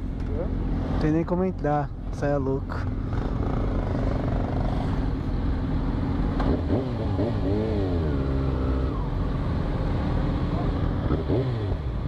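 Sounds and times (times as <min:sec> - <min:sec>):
motorcycle engines rumbling: 0:00.0 - 0:12.0
motorcycle engine revving: 0:02.8 - 0:12.0.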